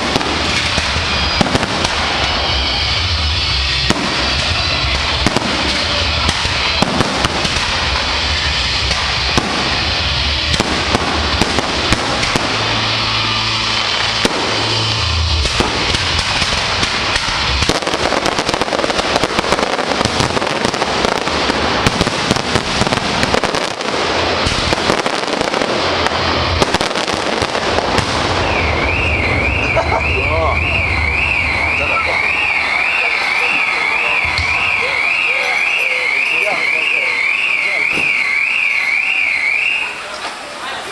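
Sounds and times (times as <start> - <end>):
fireworks crackling and banging: 0.0 - 40.9
warbling electronic alarm: 28.4 - 39.9.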